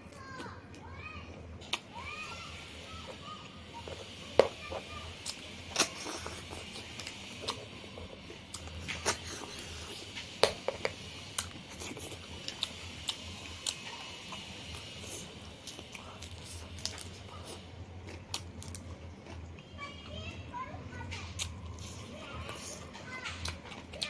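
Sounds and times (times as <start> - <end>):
person chewing with crunches: 3.0 - 19.7, 21.2 - 24.0.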